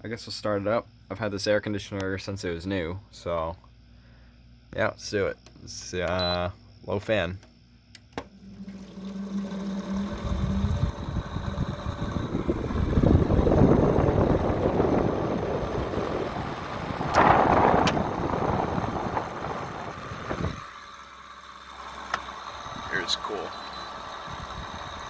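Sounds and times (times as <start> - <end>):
air conditioner fan rattling: 8.1 - 21.2, 24.0 - 25.0.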